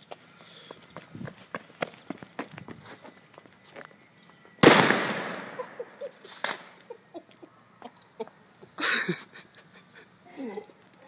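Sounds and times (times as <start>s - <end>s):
firecracker bang: 4.6s - 6.7s.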